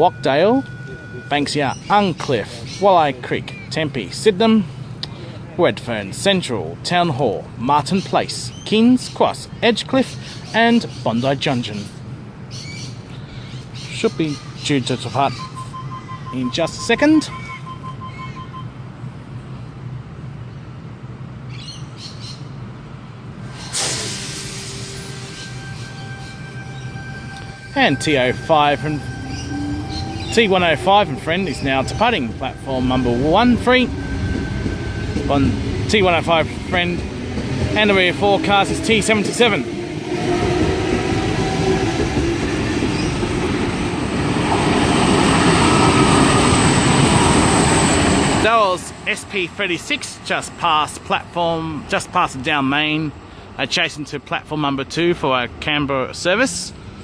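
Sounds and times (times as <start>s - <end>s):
train steady whine: 0.0s - 7.6s, 14.4s - 21.3s, 23.1s - 53.6s
train air hiss: 23.4s - 26.6s.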